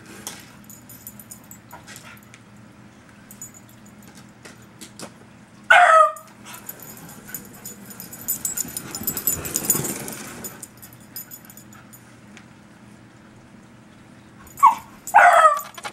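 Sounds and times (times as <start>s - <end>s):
dog yipping: 5.7s - 6.7s, 14.5s - 15.9s.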